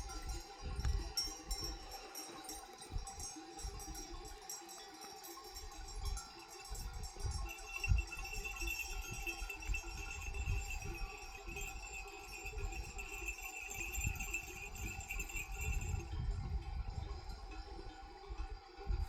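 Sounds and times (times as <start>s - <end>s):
sheep bells jingling: 0.0s - 19.0s.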